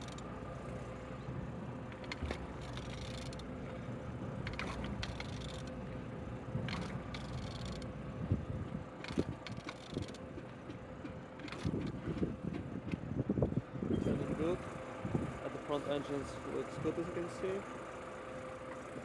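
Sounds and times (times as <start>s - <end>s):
engine turned over by hand: 1.9s - 3.5s, 4.5s - 5.8s, 6.7s - 7.9s, 9.0s - 13.1s.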